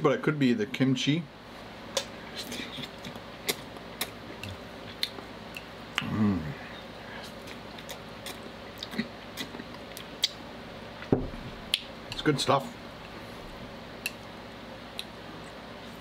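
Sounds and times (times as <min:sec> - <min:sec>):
person humming: 0:06.0 - 0:06.8
wet mouth clicks and smacks: 0:07.8 - 0:10.4.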